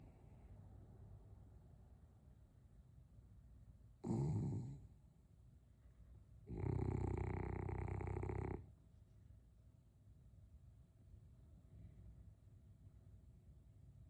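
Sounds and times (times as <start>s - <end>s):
dog snoring: 4.0s - 4.9s, 6.5s - 8.7s.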